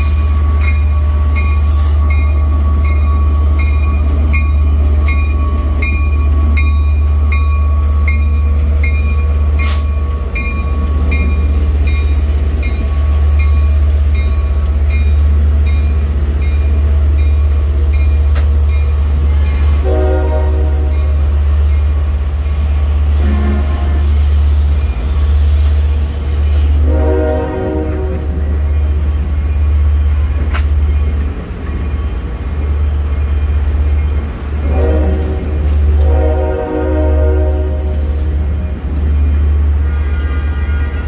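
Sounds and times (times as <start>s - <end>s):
train rumbling past: 0.0s - 41.0s
crossing bell dinging: 0.5s - 22.0s.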